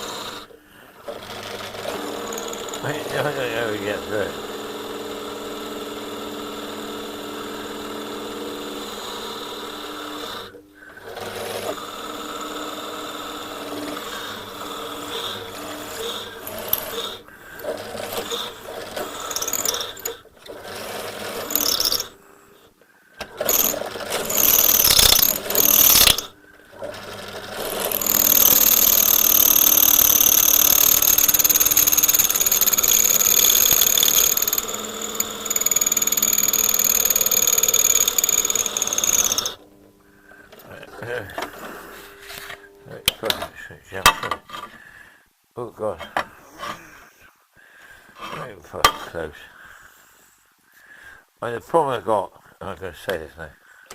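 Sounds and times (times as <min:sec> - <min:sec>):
electric drill grinding metal: 0:01.4 - 0:04.3, 0:11.6 - 0:22.2, 0:23.4 - 0:26.4, 0:27.0 - 0:39.6
high-pitched drill whine: 0:21.4 - 0:22.1, 0:23.5 - 0:26.3, 0:27.7 - 0:39.6.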